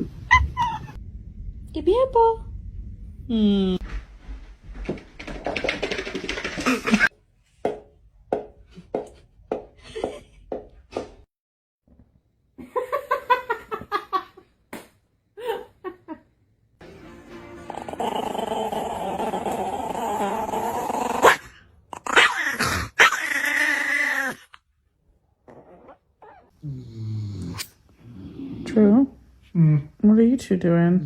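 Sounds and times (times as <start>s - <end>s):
steady full sound: 0.8s - 4.8s.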